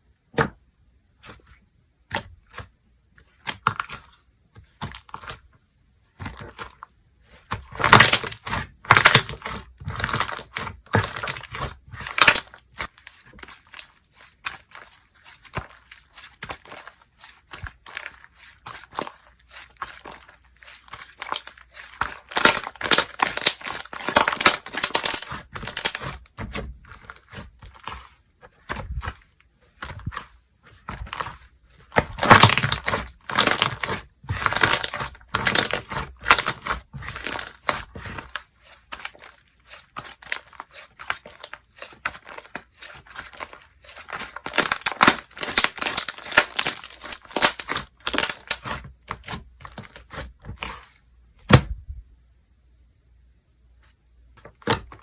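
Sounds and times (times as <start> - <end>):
slime crackling and popping: 7.6 - 29.2, 29.8 - 50.8.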